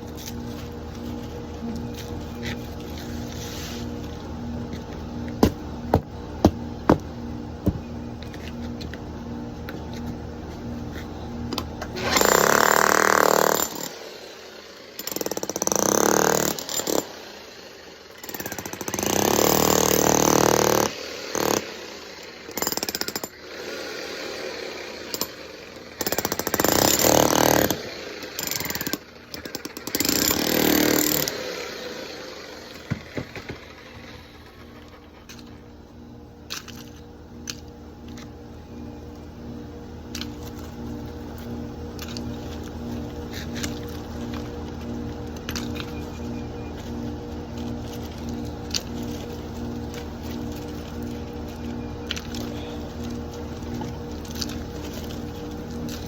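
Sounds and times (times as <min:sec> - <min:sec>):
steady low hum: 0:00.0 - 0:12.1, 0:31.9 - 0:56.0
jackhammer chipping concrete: 0:12.0 - 0:35.6, 0:42.0 - 0:56.0.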